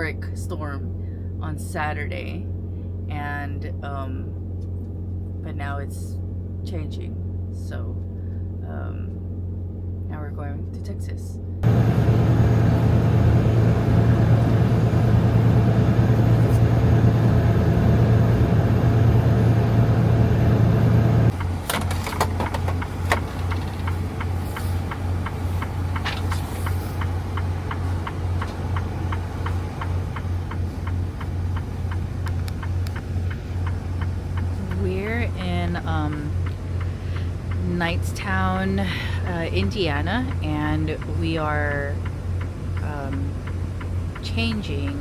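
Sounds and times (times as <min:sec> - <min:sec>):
truck diesel engine droning: 0:00.0 - 0:45.0
steady ticking: 0:22.3 - 0:45.0.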